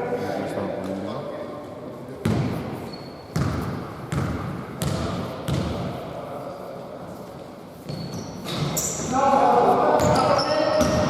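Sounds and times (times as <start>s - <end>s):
basketball bouncing on indoor court: 2.2s - 6.2s, 7.9s - 9.1s, 10.0s - 11.0s.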